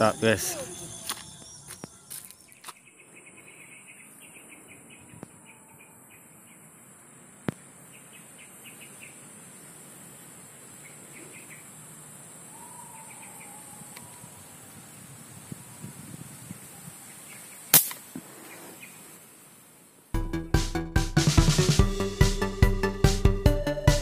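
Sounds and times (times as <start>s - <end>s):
high-pitched insect drone: 0.0s - 2.5s
small birds chirping: 0.0s - 17.7s, 18.3s - 19.3s
sharp click: 17.7s - 18.0s.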